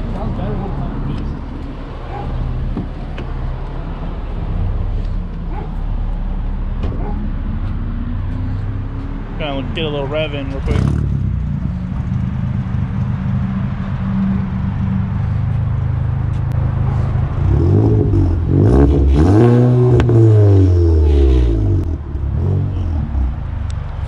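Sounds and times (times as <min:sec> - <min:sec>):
car engine idling and revving: 0:00.0 - 0:24.0
exhaust pop: 0:19.8 - 0:20.4.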